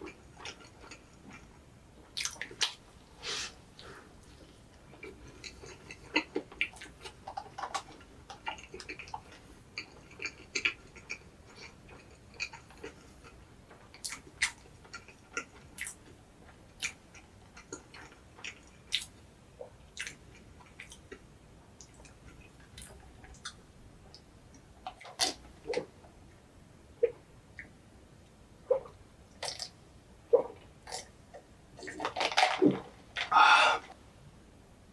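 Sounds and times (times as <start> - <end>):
chewing mouth clicks and smacks: 2.1 - 2.8, 16.8 - 19.1, 20.0 - 21.2.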